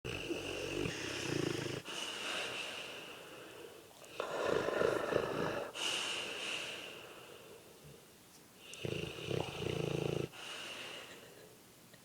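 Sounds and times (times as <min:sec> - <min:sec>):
dog snoring: 0:00.1 - 0:01.9, 0:04.1 - 0:05.8, 0:08.7 - 0:10.4
soft hissing breath: 0:00.3 - 0:11.6.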